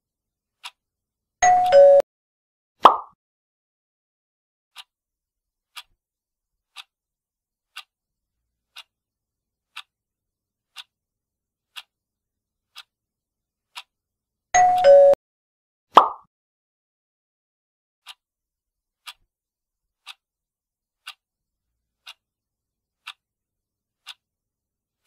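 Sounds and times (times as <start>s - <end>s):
clock ticking: 0.6s - 0.8s, 1.4s - 2.0s, 4.7s - 4.9s, 5.7s - 6.0s, 6.7s - 7.0s, 7.7s - 8.0s, 8.6s - 9.0s, 9.7s - 10.0s, 10.7s - 11.0s, 11.7s - 12.0s, 12.7s - 13.0s, 13.7s - 14.0s, 14.6s - 15.2s, 18.0s - 18.2s, 19.0s - 19.3s, 20.0s - 20.3s, 21.0s - 21.3s, 21.9s - 22.3s, 23.0s - 23.3s, 24.0s - 24.3s.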